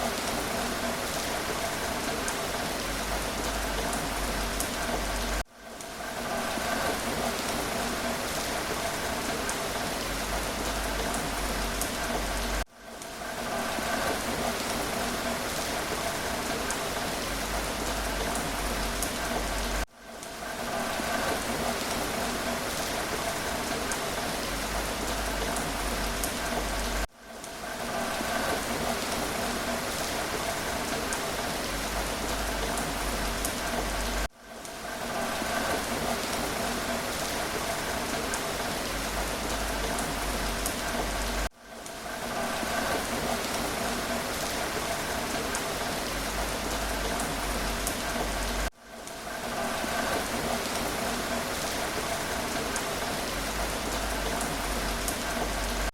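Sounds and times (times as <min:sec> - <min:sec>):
steady rain with patter of drops: 0:00.0 - 0:55.9.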